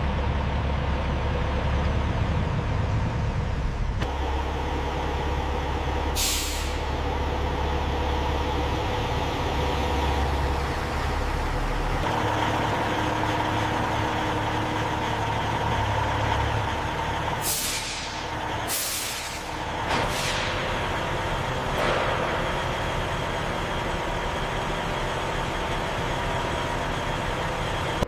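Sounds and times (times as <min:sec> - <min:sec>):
heavy truck engine running: 0:00.0 - 0:28.0
air brakes hissing: 0:06.0 - 0:07.1, 0:17.3 - 0:21.0.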